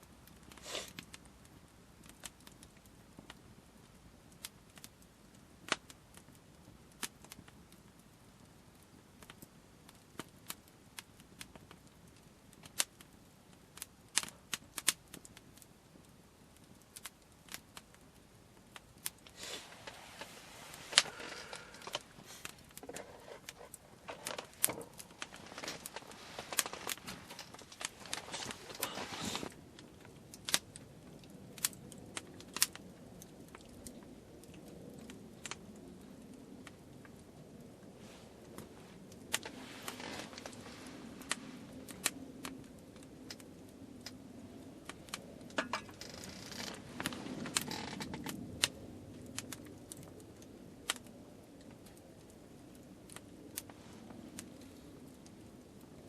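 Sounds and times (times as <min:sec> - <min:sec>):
wood fire crackling: 0:00.0 - 0:56.0
rustling noise: 0:19.2 - 0:30.1, 0:37.7 - 0:42.6, 0:45.0 - 0:48.4, 0:53.6 - 0:55.0.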